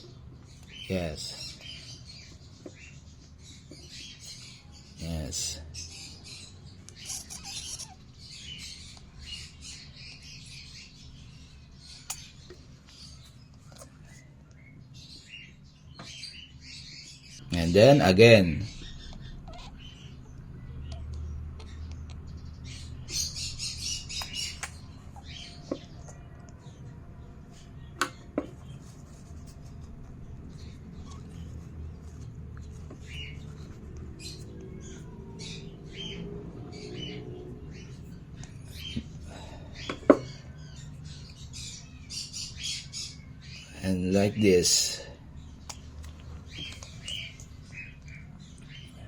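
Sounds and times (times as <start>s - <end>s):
parrot chirps: 6.9s - 8.7s, 18.6s - 21.8s
parrot chick begging calls: 7.0s - 8.0s, 19.0s - 20.0s.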